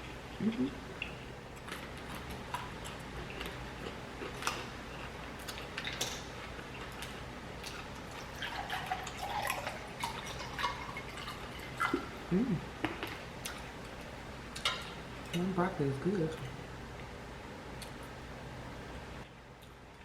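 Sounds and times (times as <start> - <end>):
wet chewing: 0.3 - 12.1.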